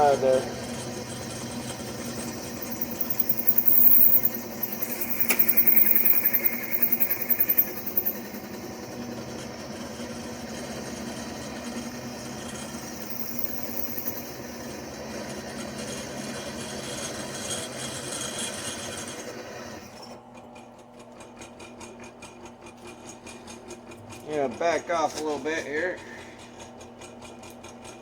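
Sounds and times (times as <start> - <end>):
drill press boring into steel: 0.0 - 19.9.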